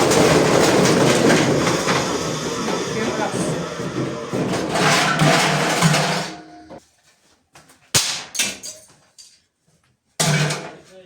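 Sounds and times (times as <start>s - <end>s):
washing machine rattling and humming: 0.0s - 6.7s.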